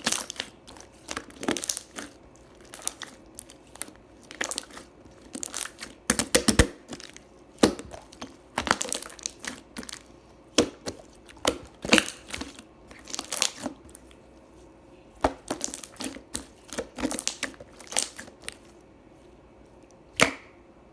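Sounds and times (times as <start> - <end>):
slime squeezed by hand: 0.0 - 14.2.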